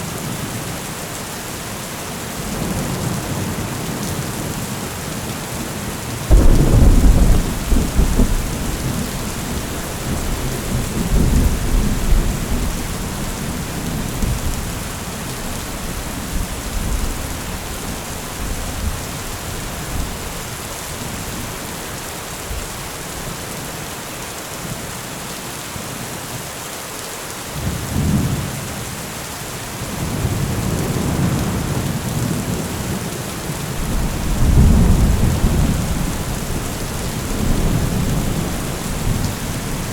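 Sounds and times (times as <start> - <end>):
steady rain: 0.0 - 39.9
thunder clap and rumble: 6.3 - 20.2, 33.8 - 39.9.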